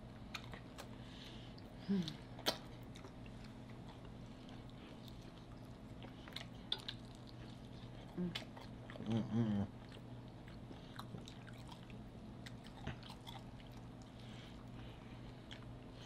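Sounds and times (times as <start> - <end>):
chewing chicken wings: 0.0 - 16.0
person humming mm: 1.8 - 2.3, 8.2 - 8.4, 9.0 - 9.7.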